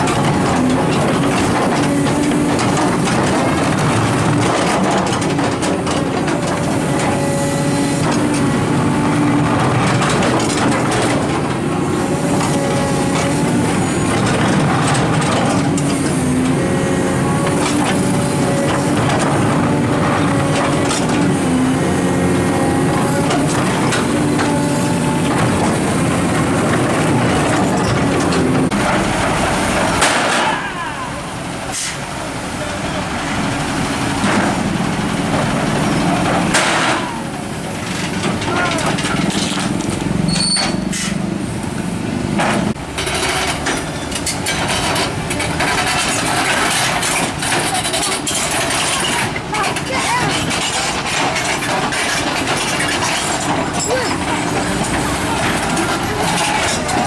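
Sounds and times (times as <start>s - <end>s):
heavy truck engines running: 0.0s - 57.0s
background voices: 45.4s - 57.0s.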